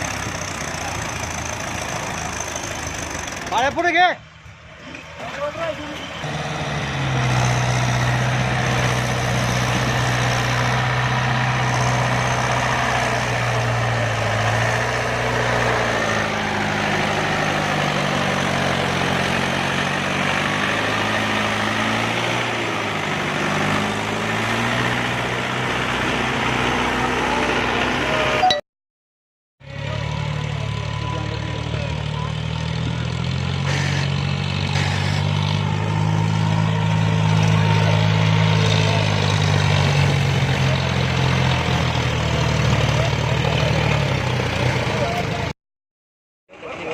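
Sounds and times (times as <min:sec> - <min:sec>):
tractor engine running: 0:00.0 - 0:28.4.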